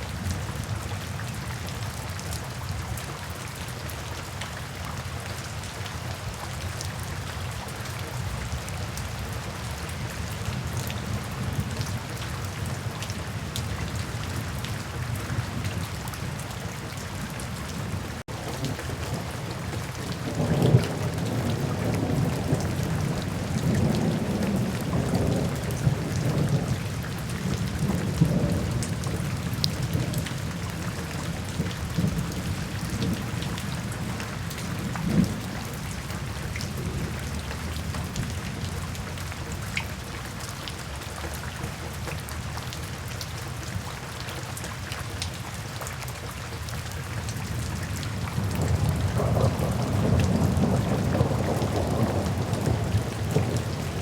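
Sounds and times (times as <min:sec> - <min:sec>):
steady rain: 0:00.0 - 0:54.0
low thunder rumbling: 0:17.4 - 0:38.9, 0:48.1 - 0:54.0.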